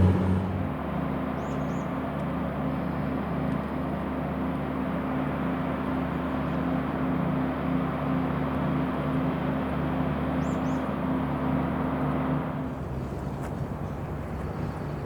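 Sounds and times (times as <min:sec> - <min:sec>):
low tones: 0:00.0 - 0:00.8
diesel engine drone: 0:00.0 - 0:15.0.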